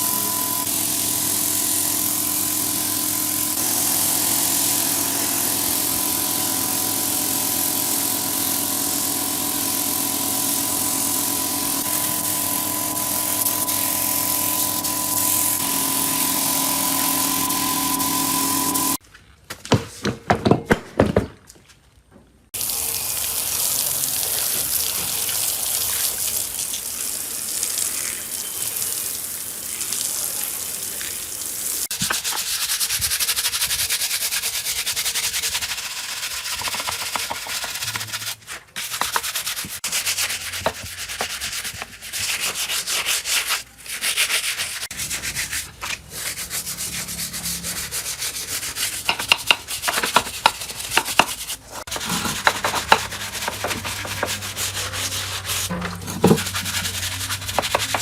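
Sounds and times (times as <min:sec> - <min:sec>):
sanding metal: 0:00.0 - 0:19.0, 0:31.9 - 0:58.0.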